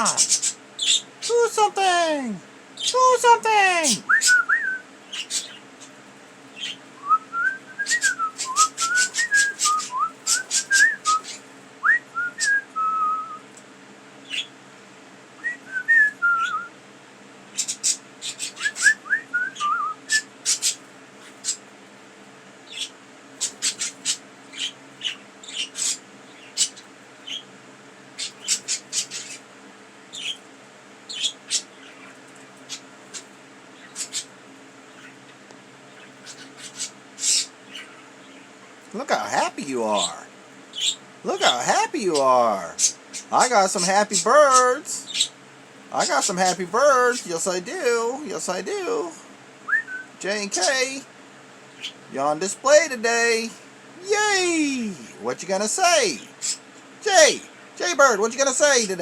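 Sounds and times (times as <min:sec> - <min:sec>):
budgies chirping and clicking: 0:00.1 - 0:01.4, 0:02.8 - 0:03.2, 0:05.0 - 0:06.9, 0:07.9 - 0:11.6, 0:13.5 - 0:14.6, 0:17.5 - 0:19.0, 0:19.6 - 0:21.8, 0:22.6 - 0:27.5, 0:28.1 - 0:29.5, 0:30.1 - 0:45.4, 0:46.0 - 0:47.5, 0:51.7 - 0:52.0, 0:56.3 - 0:56.9.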